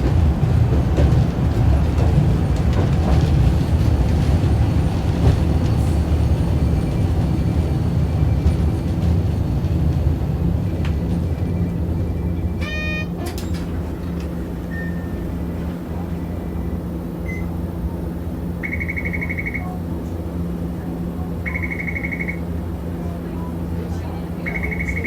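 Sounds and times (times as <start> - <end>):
tram motors and wheels rumbling: 0.0 - 25.0
rapidly pulsing beeps: 18.6 - 19.6.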